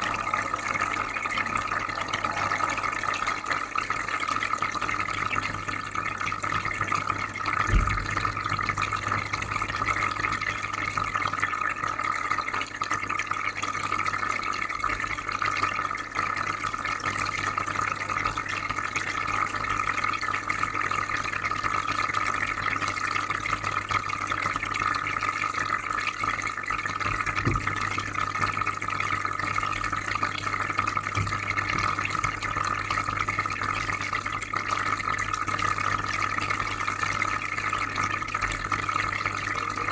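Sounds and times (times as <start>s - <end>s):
low electrical hum: 0.0s - 5.2s
aquarium filter bubbling water: 0.0s - 39.9s.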